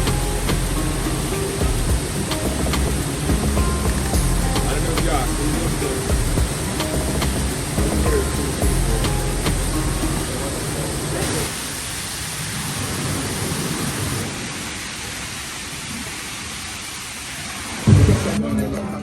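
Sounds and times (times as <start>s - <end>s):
music: 0.0s - 10.5s
waterfall rushing: 0.0s - 18.4s.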